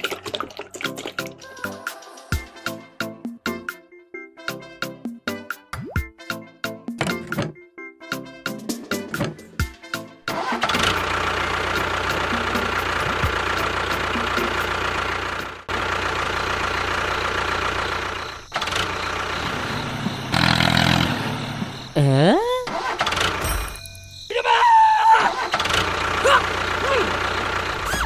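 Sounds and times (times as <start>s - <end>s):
engine running: 10.3s - 23.8s, 25.3s - 28.0s.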